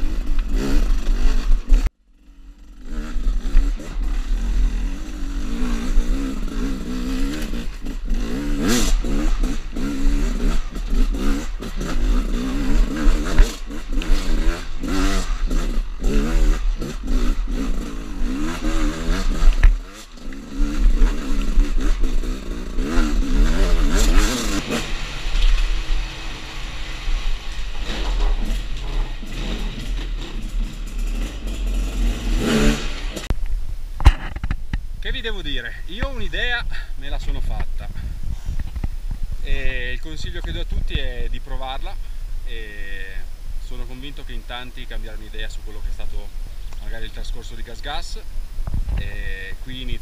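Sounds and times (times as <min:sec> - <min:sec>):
two-stroke motorcycle revving: 0:00.0 - 0:33.4.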